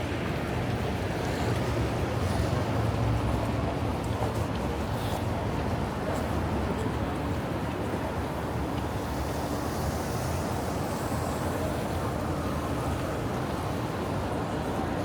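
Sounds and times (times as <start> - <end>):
traffic hiss: 8.4 - 13.4.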